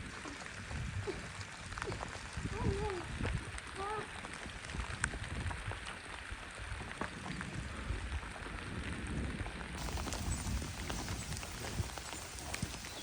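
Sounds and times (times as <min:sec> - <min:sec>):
rain pattering: 0:00.0 - 0:13.0
sharp drips: 0:09.8 - 0:13.0.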